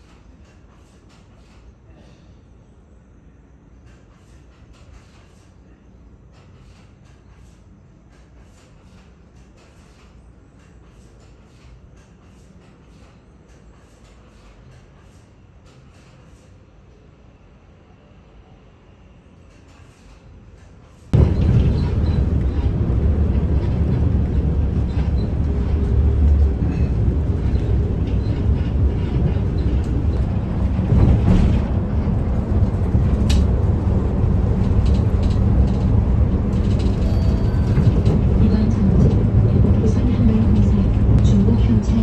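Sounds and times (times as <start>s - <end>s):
vehicle running low rumble: 21.2s - 42.0s.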